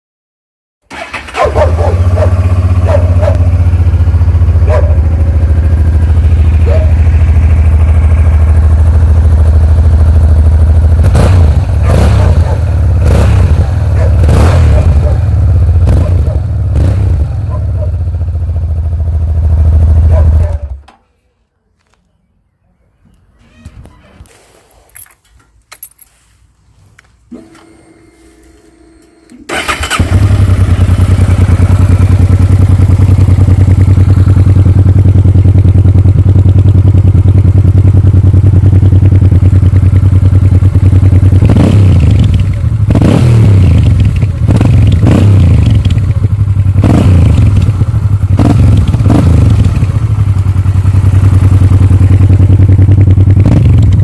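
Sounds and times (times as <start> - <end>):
motorcycle engine idling and revving: 0.9 - 21.0, 27.1 - 54.0
starter clicks and whir: 27.0 - 34.4, 39.1 - 54.0.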